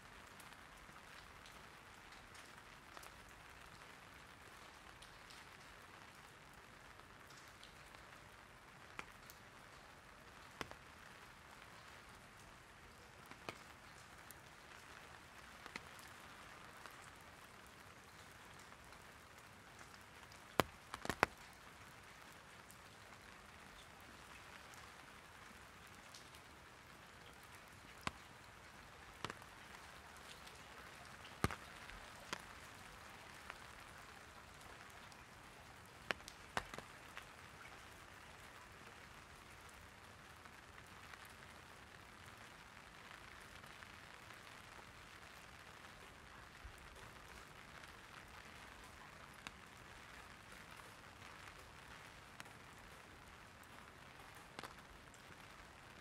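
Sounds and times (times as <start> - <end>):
light rain on an umbrella: 0.0 - 56.0
raindrop taps: 8.8 - 9.8, 10.4 - 10.9, 13.2 - 17.2, 19.8 - 21.6, 27.2 - 34.0, 36.0 - 37.8, 54.2 - 54.8.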